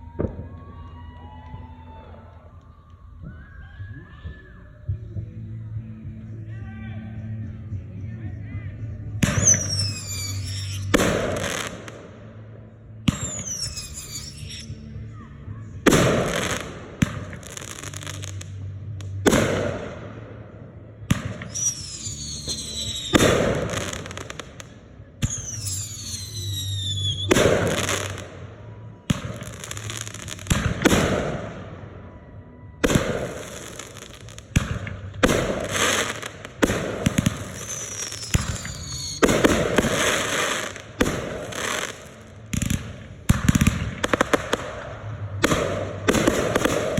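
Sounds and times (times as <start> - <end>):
firework crackling: 9.2 - 12.1, 13.1 - 14.9, 15.9 - 20.2, 21.1 - 28.5, 29.1 - 31.8, 32.8 - 46.9
firework mortar bangs: 9.2 - 12.1, 15.9 - 20.4, 21.1 - 28.4, 29.1 - 31.8, 32.8 - 46.9
falling firework whistles: 9.4 - 11.5, 13.2 - 14.8, 21.5 - 24.4, 25.3 - 28.2, 37.1 - 40.8.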